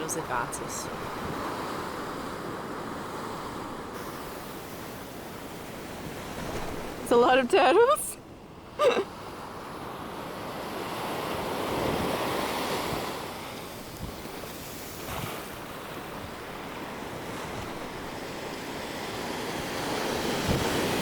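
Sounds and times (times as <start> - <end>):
small waves washing onto beach: 0.0 - 21.0
wind on microphone: 11.0 - 21.0.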